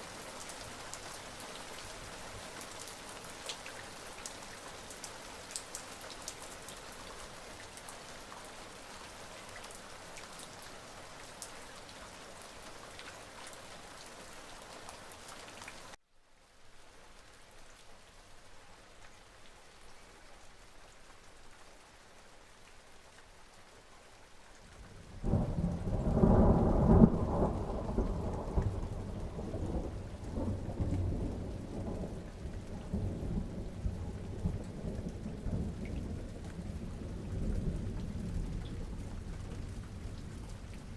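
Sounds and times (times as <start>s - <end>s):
rain falling: 0.0s - 40.9s
thunder rolling: 25.2s - 31.4s.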